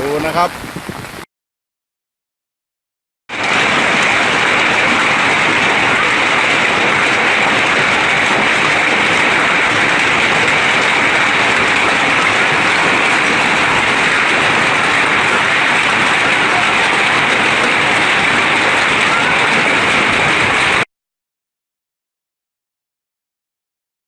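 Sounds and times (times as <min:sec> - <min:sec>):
heavy rain pouring: 0:00.0 - 0:01.3, 0:03.3 - 0:20.9.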